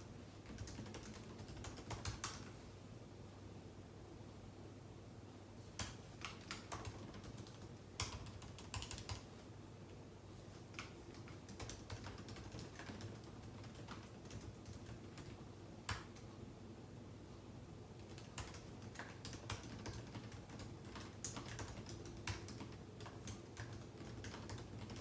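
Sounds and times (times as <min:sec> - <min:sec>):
low steady hum: 0:00.0 - 0:25.0
computer keyboard typing: 0:00.4 - 0:02.6, 0:05.8 - 0:09.4, 0:10.6 - 0:16.4, 0:18.0 - 0:25.0.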